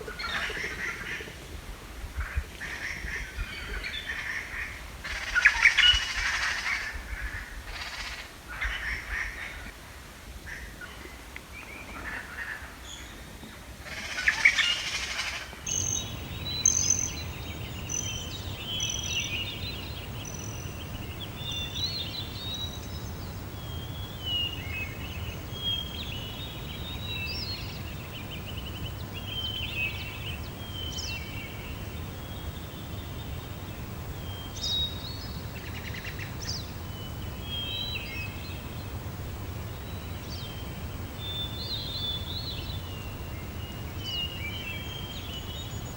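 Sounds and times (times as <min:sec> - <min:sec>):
small birds chirping: 0:15.7 - 0:45.9.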